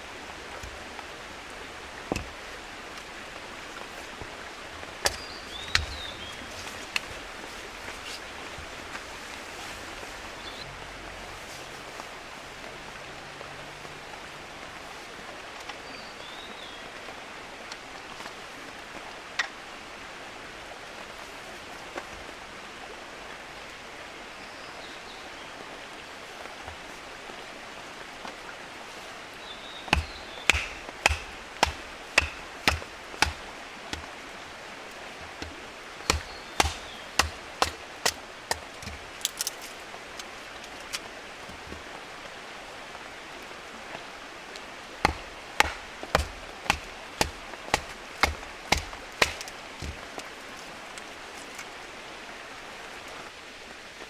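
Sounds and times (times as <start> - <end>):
steady outdoor hiss: 0.0 - 54.0
wood splitting knocks: 0.3 - 9.1, 29.9 - 34.1, 35.2 - 41.8, 45.0 - 50.6.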